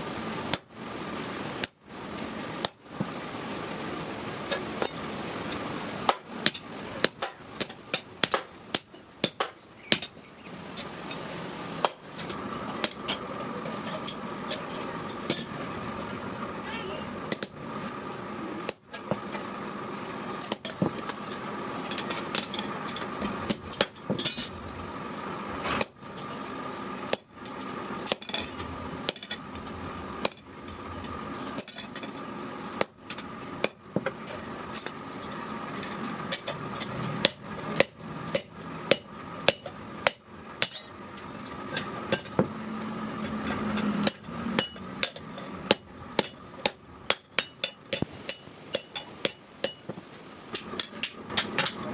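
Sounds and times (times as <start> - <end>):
steady background hum: 0.0 - 51.9
hammer striking metal: 37.2 - 41.0, 43.2 - 50.0.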